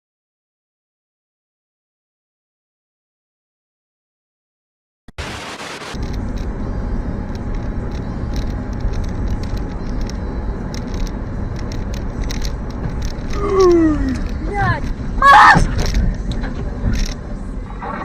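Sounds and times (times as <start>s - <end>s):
car road and engine noise: 5.1s - 18.0s
light clicks and rattles: 7.3s - 15.0s, 15.6s - 17.3s.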